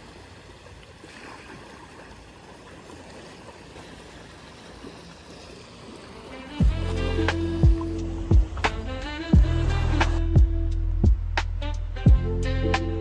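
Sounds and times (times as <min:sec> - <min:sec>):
small waves washing on beach: 0:00.0 - 0:10.2
music with a beat: 0:06.6 - 0:13.0.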